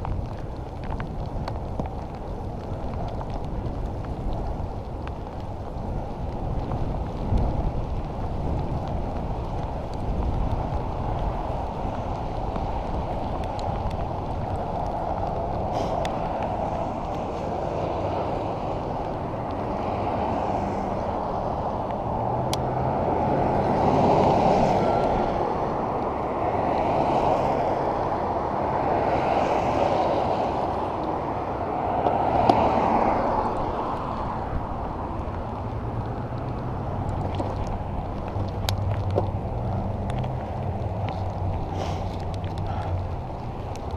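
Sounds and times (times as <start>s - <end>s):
vehicles passing on wet road: 0.0s - 43.9s
wet road noise: 0.0s - 43.9s.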